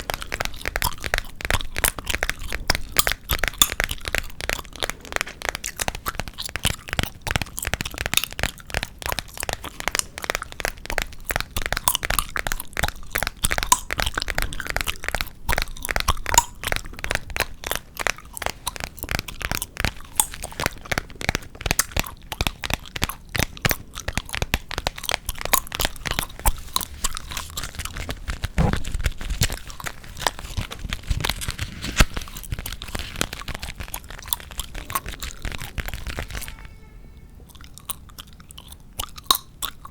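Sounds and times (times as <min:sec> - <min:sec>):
gum chewing: 0:00.0 - 0:36.5, 0:37.4 - 0:39.9.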